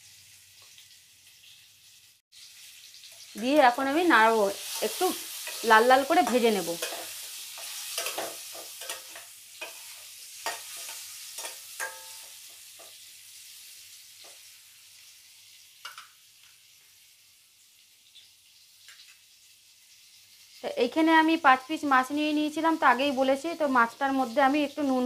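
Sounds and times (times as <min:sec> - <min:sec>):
food sizzling in hot oil: 0:00.0 - 0:25.0
spatula scraping a pan: 0:04.5 - 0:14.5.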